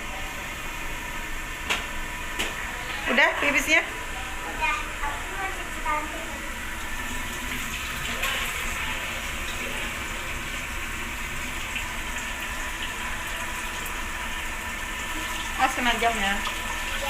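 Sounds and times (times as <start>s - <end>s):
water running from tap: 4.9s - 17.0s.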